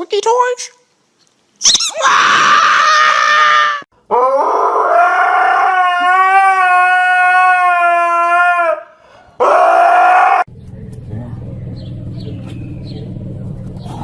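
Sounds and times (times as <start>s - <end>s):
dog howling: 1.9s - 10.5s.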